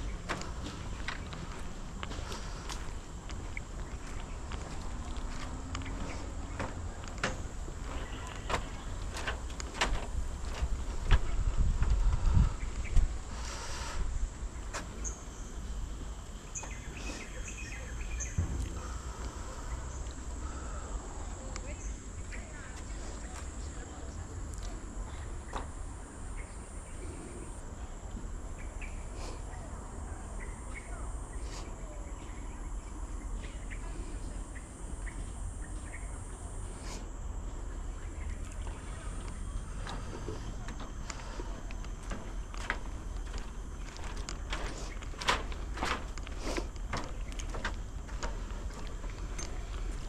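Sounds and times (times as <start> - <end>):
high-pitched insect drone: 17.8 - 50.0.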